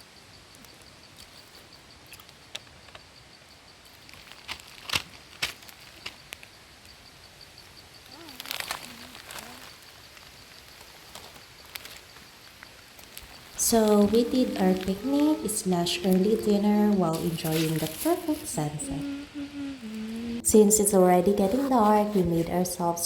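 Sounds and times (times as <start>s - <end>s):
faint voice: 8.1s - 9.7s, 13.6s - 23.0s.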